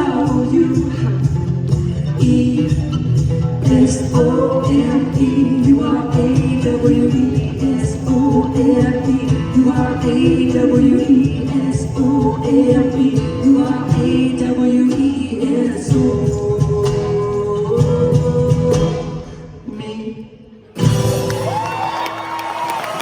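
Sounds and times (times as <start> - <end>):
people singing: 0.0 - 1.4, 2.1 - 20.1
live band playing: 0.0 - 15.3, 20.8 - 22.7.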